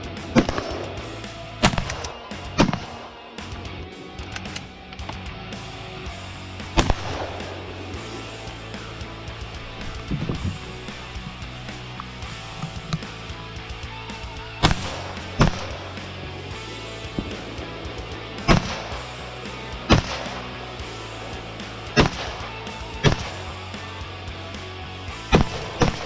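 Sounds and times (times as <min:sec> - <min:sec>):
background music: 0:00.0 - 0:26.0.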